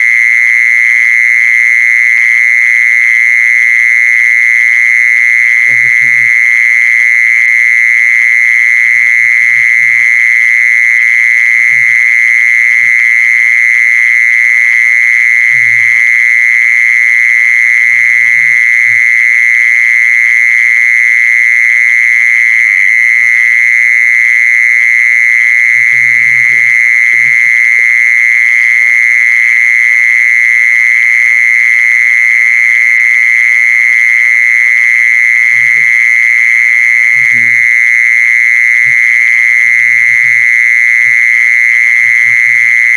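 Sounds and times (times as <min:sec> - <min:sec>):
insect shrill buzzing call: 0:35.4 - 0:42.9.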